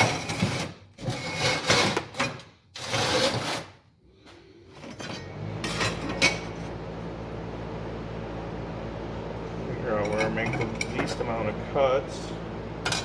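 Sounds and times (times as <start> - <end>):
sheet steel scraping on workbench: 0.0 - 3.8
machine hum: 5.2 - 13.0.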